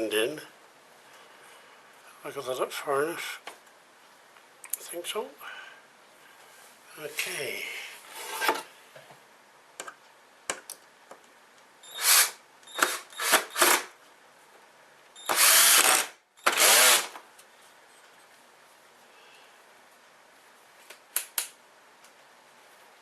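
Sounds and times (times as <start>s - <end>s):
power drill running: 11.8s - 13.9s, 15.2s - 17.2s.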